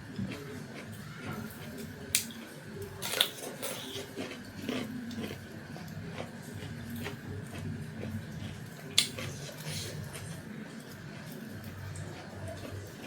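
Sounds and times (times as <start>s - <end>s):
chewing and mouth noises: 0.2s - 13.0s.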